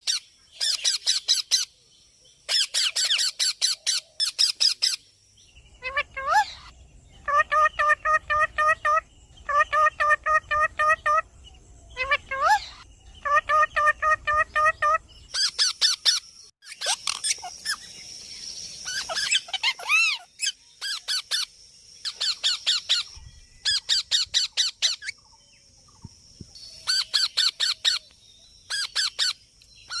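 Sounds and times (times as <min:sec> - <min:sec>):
parrot shrill squawks: 0:12.0 - 0:17.8, 0:18.8 - 0:21.5.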